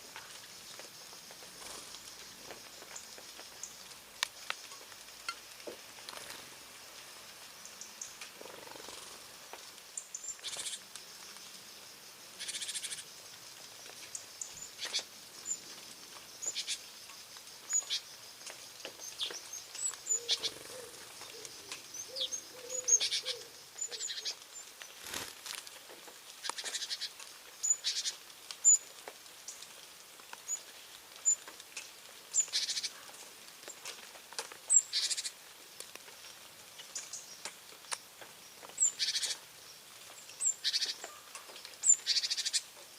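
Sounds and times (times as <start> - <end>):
blackbirds chirping: 9.9 - 10.9, 12.3 - 13.1, 14.0 - 15.8, 16.4 - 17.0, 17.6 - 25.3, 26.0 - 28.9, 32.3 - 33.9, 34.7 - 35.4, 36.2 - 42.8
rasping bird calls: 20.1 - 24.4.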